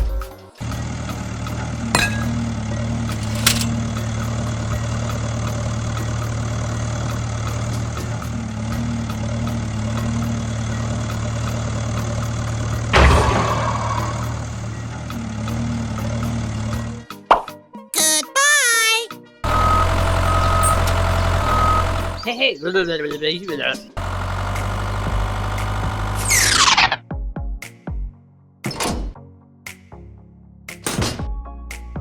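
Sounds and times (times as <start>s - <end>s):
tractor engine idling: 0.6s - 16.9s, 19.4s - 22.3s, 24.0s - 26.6s
loud clatter: 3.1s - 3.9s.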